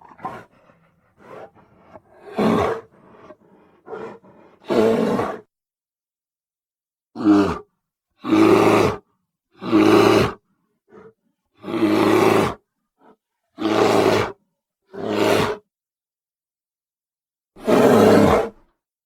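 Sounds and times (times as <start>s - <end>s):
bear roaring: 0.0s - 5.5s, 7.2s - 9.0s, 9.6s - 12.6s, 13.6s - 15.6s, 17.6s - 18.6s.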